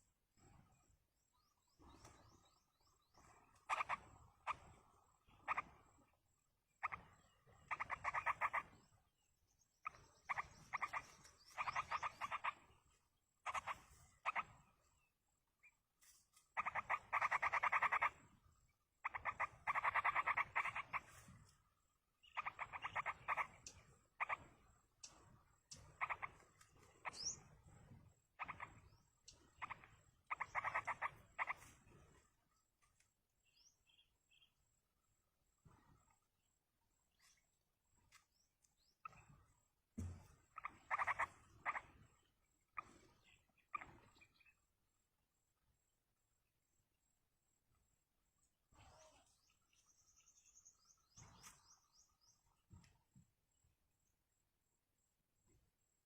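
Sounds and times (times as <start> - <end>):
nestlings raspy chattering: 3.2 - 6.1, 6.8 - 9.0, 9.8 - 14.9, 16.6 - 18.4, 19.0 - 21.3, 22.2 - 27.6, 28.3 - 32.2, 40.5 - 44.5.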